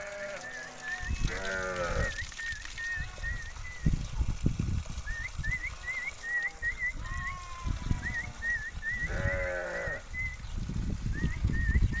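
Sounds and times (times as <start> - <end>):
sheep bleating: 0.0 - 2.2, 9.1 - 10.0.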